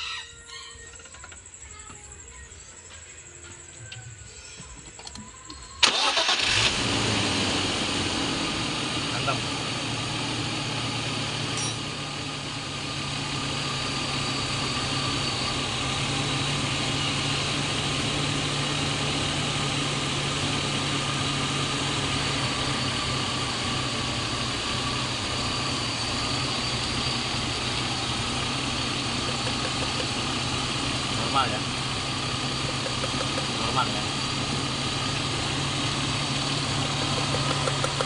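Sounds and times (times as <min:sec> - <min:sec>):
car engine idling: 0:05.8 - 0:38.0.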